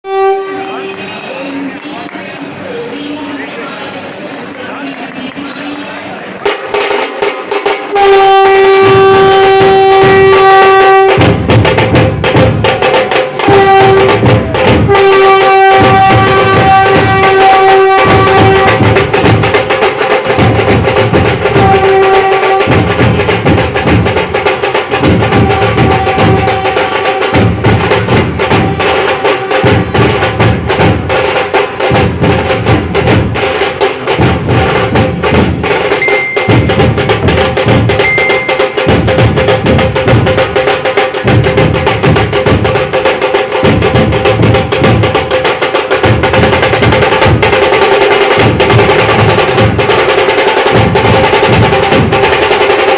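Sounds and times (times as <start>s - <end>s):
drum-led music: 4.2s - 52.9s
held tone: 36.0s - 37.0s, 38.0s - 39.0s.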